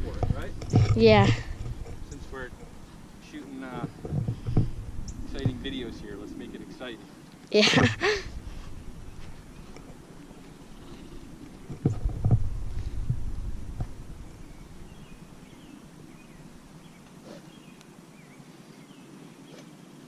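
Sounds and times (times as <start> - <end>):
microphone knocks and rumble: 0.0 - 6.2, 11.5 - 15.6
birds chirping: 0.0 - 20.0.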